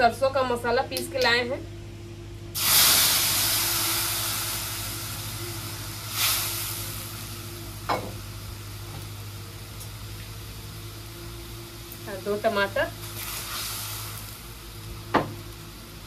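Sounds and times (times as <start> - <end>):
paste sizzling in hot oil: 2.6 - 9.3, 12.1 - 16.0.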